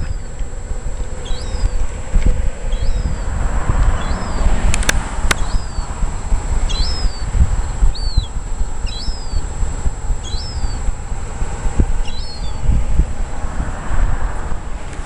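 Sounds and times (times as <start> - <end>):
bird chirping: 0.0 - 13.0
wind buffeting microphone: 0.0 - 15.0
sharp clicks: 4.7 - 5.6.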